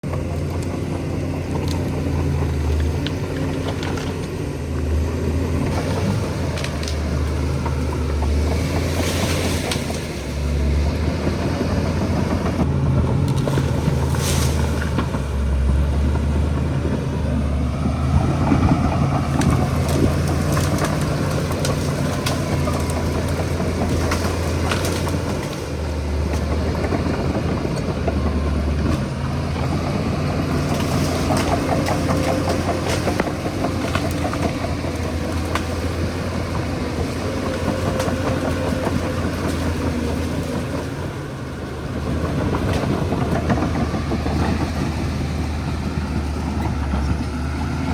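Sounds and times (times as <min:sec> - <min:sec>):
bulldozer diesel engine droning: 0:00.0 - 0:47.9.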